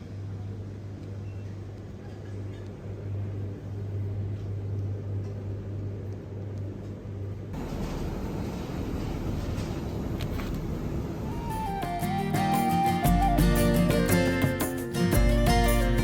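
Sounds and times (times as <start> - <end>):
road noise: 7.6 - 12.0.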